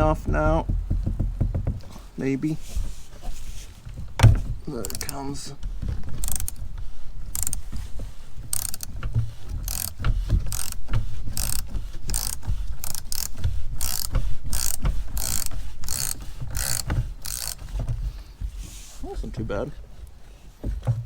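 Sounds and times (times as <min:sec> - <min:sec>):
hand ratchet clicking: 0:04.3 - 0:05.4, 0:06.0 - 0:17.9.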